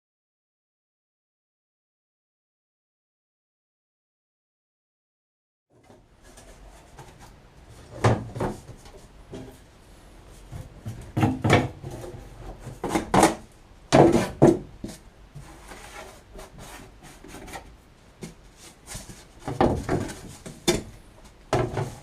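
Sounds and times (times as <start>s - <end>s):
wood scraping on wood: 10.3s - 20.8s.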